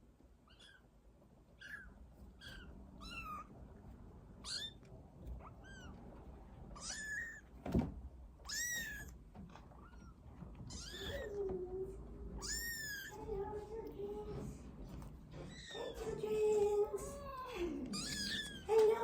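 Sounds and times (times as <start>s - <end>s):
kittens mewing: 0.4s - 0.9s, 1.6s - 3.6s, 4.3s - 7.6s, 8.4s - 13.7s, 15.4s - 19.0s.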